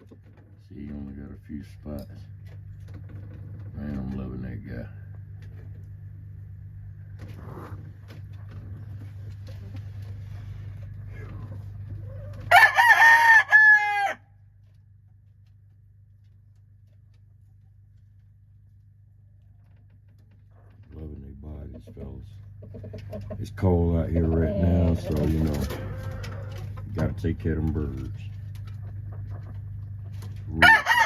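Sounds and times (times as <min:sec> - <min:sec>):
steady low hum: 0:00.0 - 0:31.0
faint rustles: 0:07.1 - 0:12.4
rooster crowing: 0:12.2 - 0:14.3, 0:25.6 - 0:26.6, 0:30.6 - 0:31.0.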